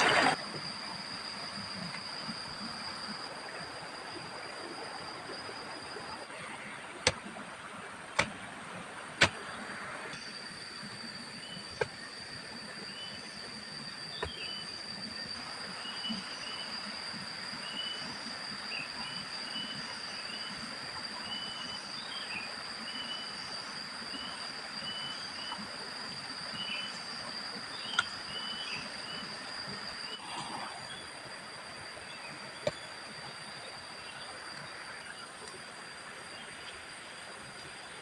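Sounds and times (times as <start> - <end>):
insect drone: 0.0 - 38.0
bird chirps: 26.5 - 30.2.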